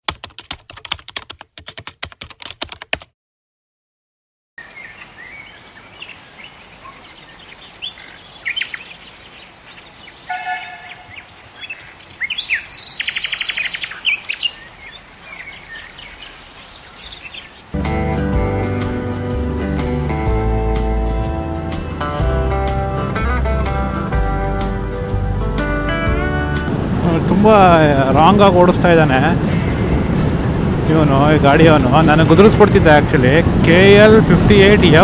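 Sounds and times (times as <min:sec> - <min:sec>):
rapid keyboard-like clicking: 0:00.0 - 0:03.1
birds chirping and calling: 0:04.6 - 0:17.8, 0:29.3 - 0:30.9.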